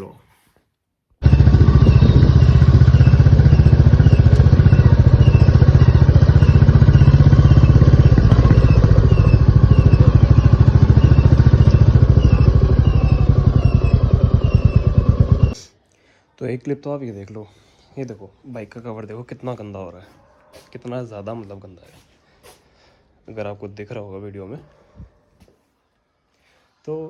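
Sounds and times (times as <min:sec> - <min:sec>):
motorcycle engine running: 0:01.2 - 0:15.6.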